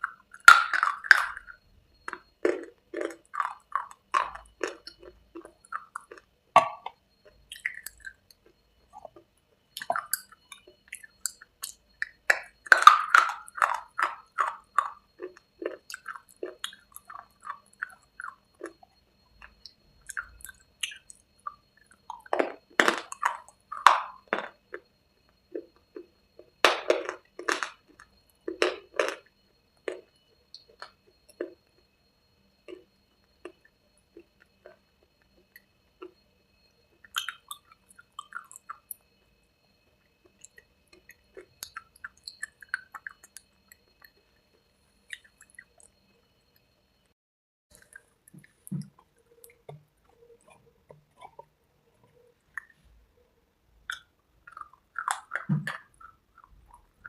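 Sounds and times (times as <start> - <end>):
person crunching brittle cubes: 0.0 - 8.4, 9.8 - 18.8, 22.0 - 24.8, 25.5 - 29.2, 53.9 - 57.0
soft chewing: 0.0 - 31.8, 36.9 - 39.1, 39.8 - 46.8, 47.7 - 53.1, 53.8 - 57.0.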